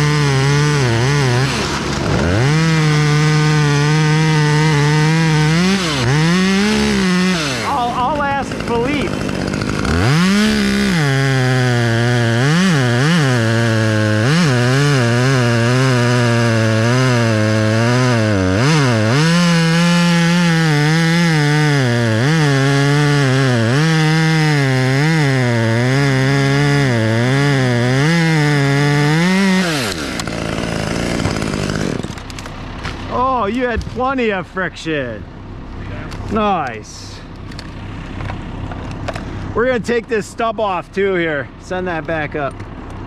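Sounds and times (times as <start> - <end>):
chainsaw cutting wood: 0.0 - 34.4.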